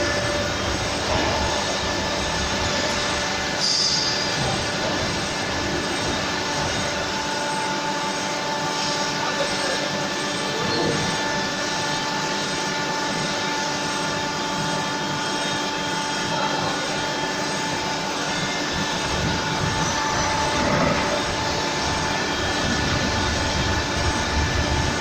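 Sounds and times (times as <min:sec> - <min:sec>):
grinding machine whine: 0:00.0 - 0:25.0.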